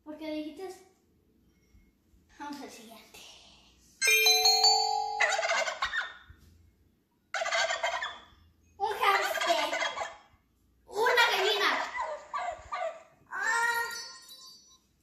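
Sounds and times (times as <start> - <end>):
bell-like chime: 4.0 - 5.6.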